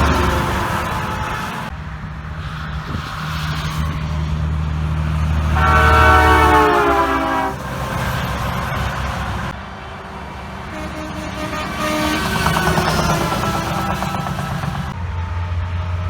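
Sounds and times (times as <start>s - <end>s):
truck air horn: 0.0s - 1.7s, 5.4s - 7.9s, 10.7s - 15.3s
truck engine drone: 0.0s - 16.0s.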